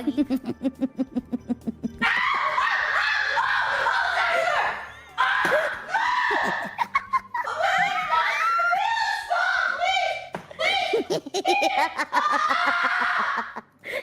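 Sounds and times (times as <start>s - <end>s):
young woman screaming and laughing: 1.8s - 9.3s, 10.6s - 14.0s.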